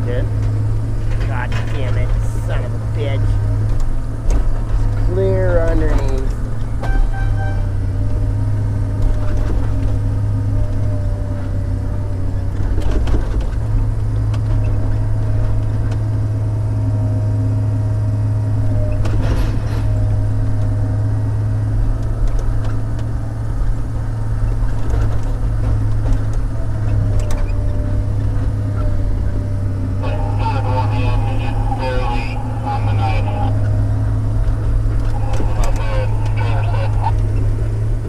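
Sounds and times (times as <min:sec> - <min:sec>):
diesel engine droning: 0:00.0 - 0:38.0.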